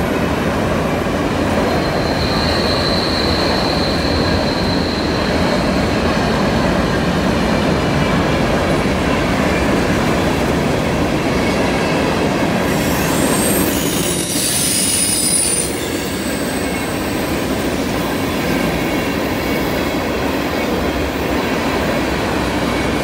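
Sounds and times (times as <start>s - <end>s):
train wheels rumbling on rail: 0.0s - 23.0s
high wheel squeal: 1.6s - 7.2s, 12.6s - 17.4s.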